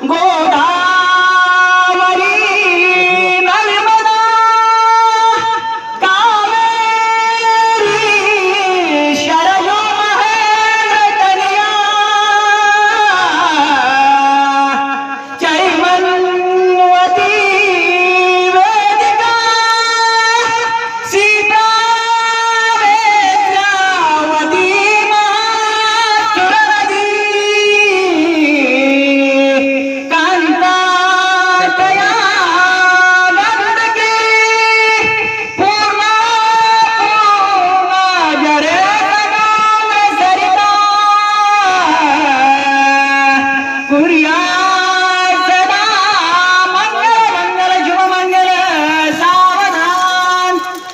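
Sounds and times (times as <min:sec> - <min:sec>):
person singing: 0:00.0 - 0:50.9
breaths: 0:15.1 - 0:15.4.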